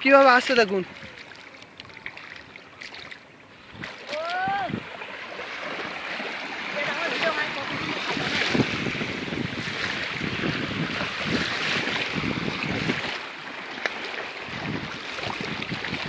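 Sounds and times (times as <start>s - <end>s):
waves lapping against boat: 0.0s - 16.0s
wind buffeting microphone: 3.6s - 13.4s, 14.4s - 16.0s.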